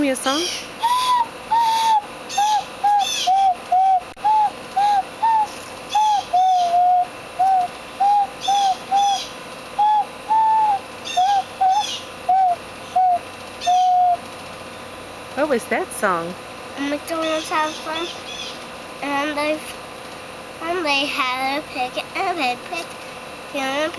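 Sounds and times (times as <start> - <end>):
bird whistle notes: 0.3 - 14.2.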